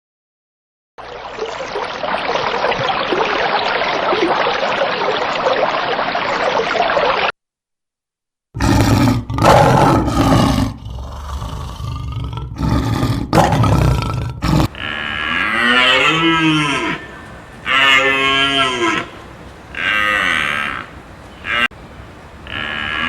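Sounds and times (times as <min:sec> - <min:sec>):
animal roaring: 0:08.6 - 0:23.0
drawn-out rising and falling calls: 0:14.6 - 0:23.0.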